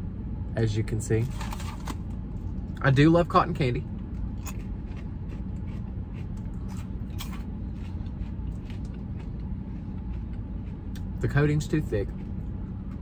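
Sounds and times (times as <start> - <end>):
car hum: 0.0 - 13.0
popcorn crunching: 4.0 - 13.0.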